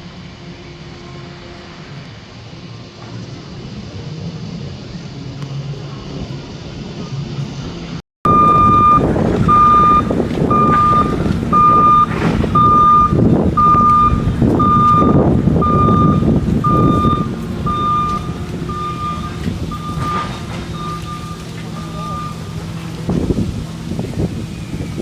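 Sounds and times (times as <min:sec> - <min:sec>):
heavy machinery rumbling: 0:00.0 - 0:25.0
backup alarm beeping: 0:08.3 - 0:23.2.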